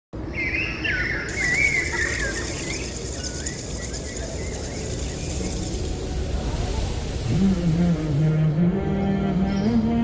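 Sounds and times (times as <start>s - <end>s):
small birds chirping: 0.4s - 6.1s
steady hiss: 1.3s - 8.7s.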